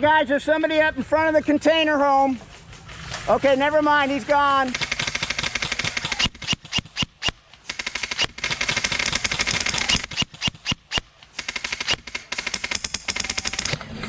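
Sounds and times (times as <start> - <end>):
airsoft rifle firing bursts: 4.7 - 13.6.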